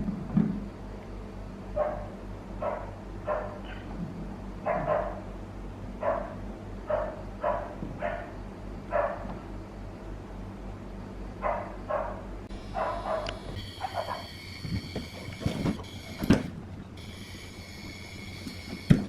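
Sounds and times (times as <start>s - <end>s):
steady low hum: 0.0s - 19.0s
dog barking: 1.8s - 3.8s, 4.6s - 5.2s, 6.0s - 8.3s, 8.9s - 9.3s, 11.4s - 14.3s.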